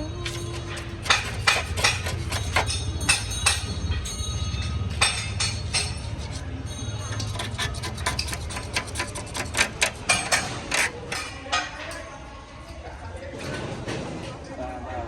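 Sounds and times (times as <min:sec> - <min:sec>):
sharp metal knocks and clinks: 0:00.2 - 0:12.8.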